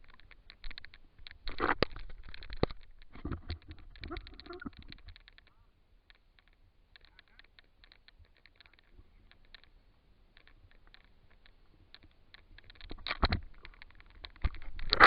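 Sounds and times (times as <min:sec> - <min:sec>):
small sharp clicks and taps: 0:00.0 - 0:15.0.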